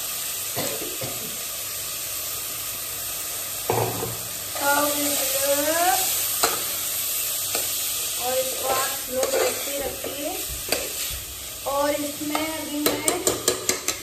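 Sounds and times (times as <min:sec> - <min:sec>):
frying sizzle: 0:00.0 - 0:14.0.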